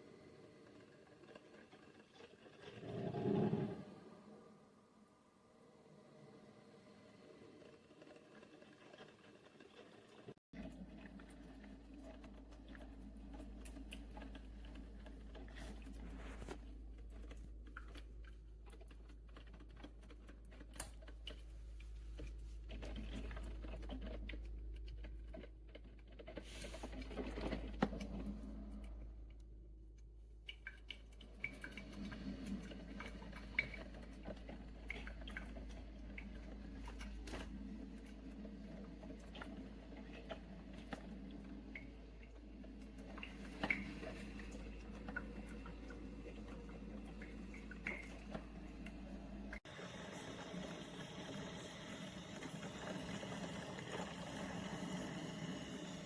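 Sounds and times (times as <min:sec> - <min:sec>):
coffee maker ticks and crackles: 0:00.0 - 0:02.9, 0:07.1 - 0:56.0
coffee maker hiss: 0:49.0 - 0:56.0.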